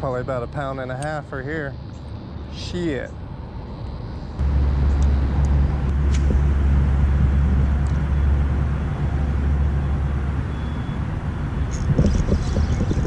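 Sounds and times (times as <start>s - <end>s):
wind buffeting microphone: 4.4s - 13.0s.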